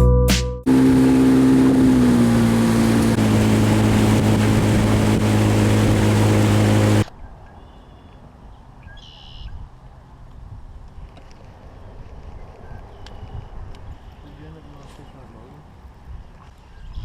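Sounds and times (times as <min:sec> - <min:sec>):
boat motor running: 0:00.0 - 0:07.1
lake ambience: 0:00.7 - 0:07.1
wind and water rushing: 0:00.7 - 0:07.1.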